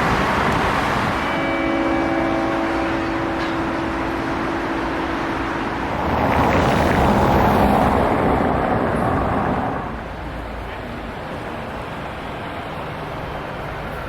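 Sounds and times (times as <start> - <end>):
motor vehicle passing: 0.0 - 10.2.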